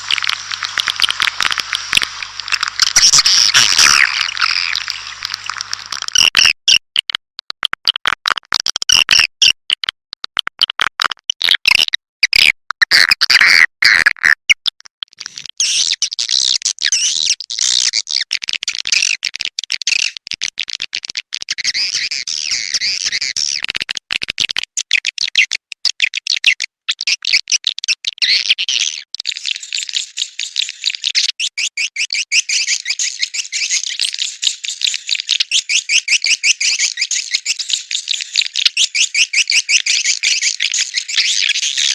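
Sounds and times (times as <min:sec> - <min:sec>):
swiftlets twittering and clicking: 0:00.0 - 0:06.3.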